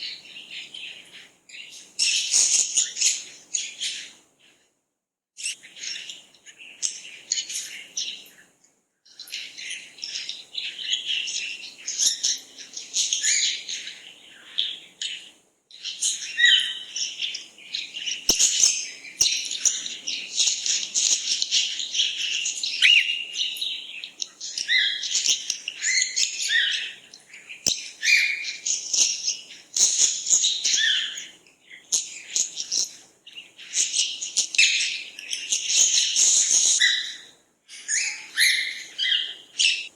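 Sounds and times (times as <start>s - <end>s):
small birds chirping: 0.0s - 4.6s, 5.4s - 39.9s.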